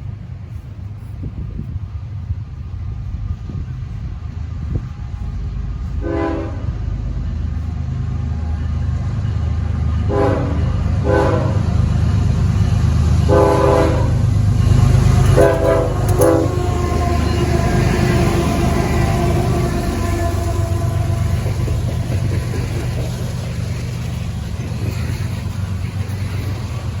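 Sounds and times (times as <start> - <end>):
diesel locomotives rumbling past: 0.0 - 27.0
locomotive air horn blasts: 5.9 - 6.8, 10.0 - 11.7, 13.2 - 21.8.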